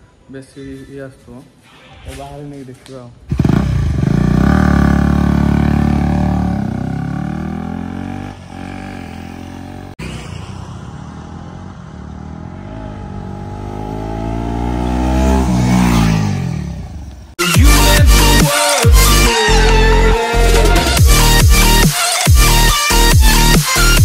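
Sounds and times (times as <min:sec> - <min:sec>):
motorcycle engine revving and idling: 0:03.3 - 0:17.4.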